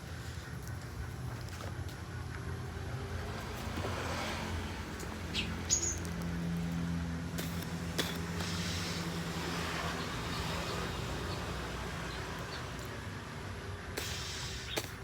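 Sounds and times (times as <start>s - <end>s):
birds chirping: 4.8s - 6.6s, 7.6s - 15.0s.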